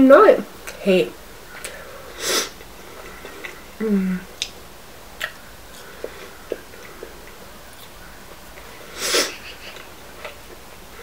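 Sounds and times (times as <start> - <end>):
chewing fries: 2.6 - 11.0.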